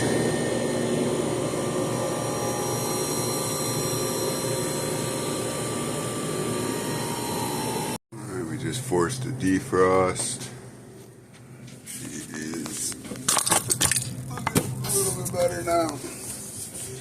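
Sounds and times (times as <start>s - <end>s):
thin steady whining tones: 0.0s - 10.6s
refrigeration unit humming: 0.0s - 17.0s.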